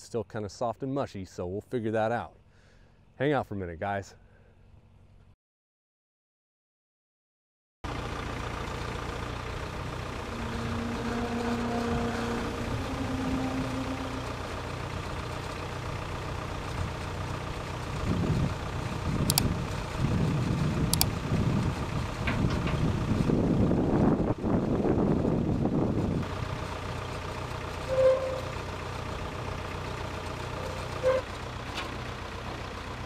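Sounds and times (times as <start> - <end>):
backhoe engine idling: 7.9 - 33.0
sharp clicks: 19.2 - 19.5, 20.9 - 21.2.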